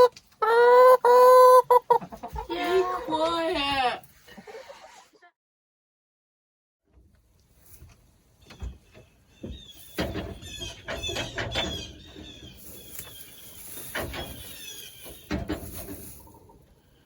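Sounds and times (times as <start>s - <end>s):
farm animals squealing: 0.0s - 2.0s
knocks and scuffling: 7.5s - 16.7s.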